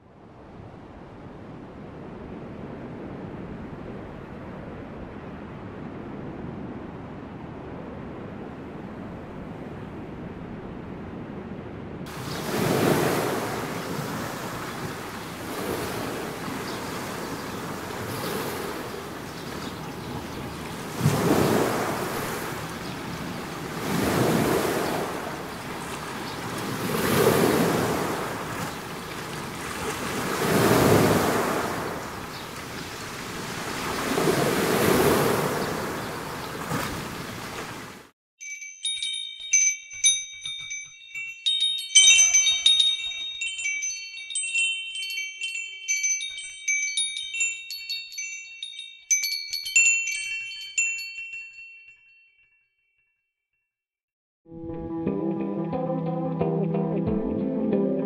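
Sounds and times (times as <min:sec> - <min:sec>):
ocean surf washing in: 0:00.3 - 0:38.1
wind chimes ringing: 0:12.1 - 0:29.1, 0:38.4 - 0:53.2.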